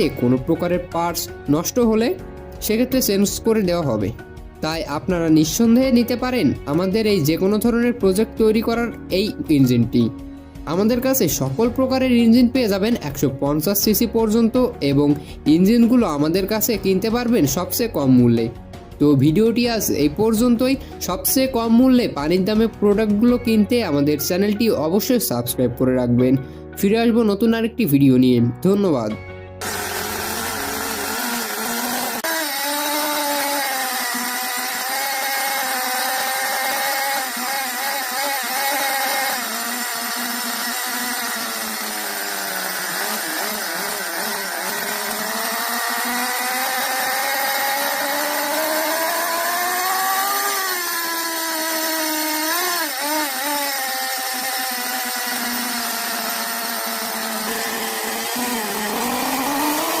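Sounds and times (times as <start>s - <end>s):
model engine running at high speed: 0.0s - 25.3s, 29.6s - 60.0s.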